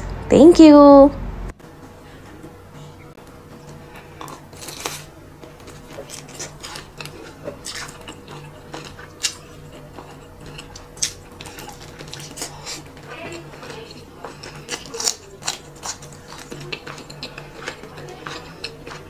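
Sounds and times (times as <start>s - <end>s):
crunchy chewing: 3.6s - 19.0s.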